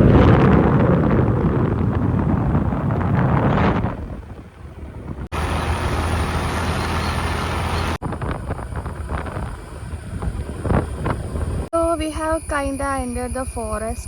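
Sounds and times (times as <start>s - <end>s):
road noise: 1.1s - 11.7s
vehicle engine: 5.3s - 11.7s.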